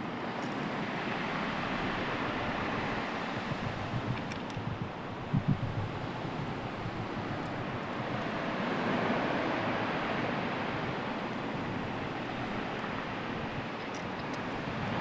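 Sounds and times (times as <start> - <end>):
sea waves washing ashore: 0.0 - 15.0.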